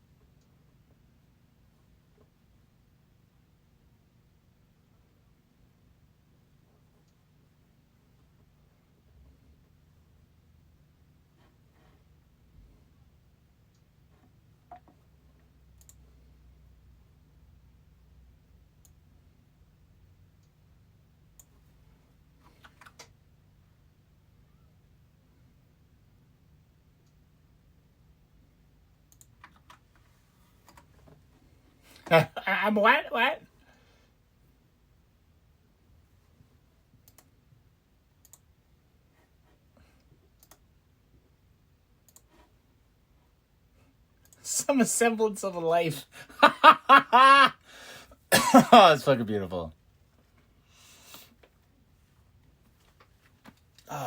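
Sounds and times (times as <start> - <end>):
low room hum: 0.0 - 54.0
faint sharp clicks: 15.7 - 16.0, 29.1 - 29.8, 37.0 - 37.4, 38.2 - 38.5, 40.3 - 40.7, 42.0 - 42.4.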